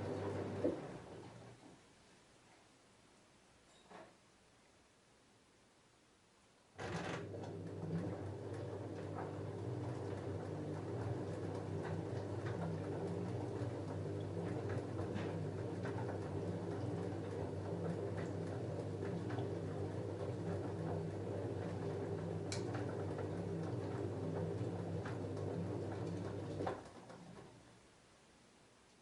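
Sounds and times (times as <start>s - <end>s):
washing machine motor hum: 0.0s - 1.7s, 6.8s - 27.7s.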